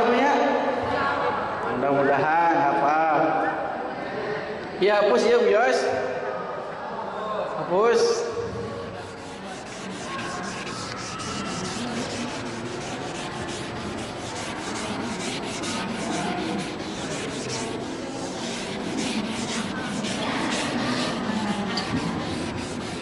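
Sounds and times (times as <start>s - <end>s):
board eraser rubbing on board: 8.8s - 23.0s.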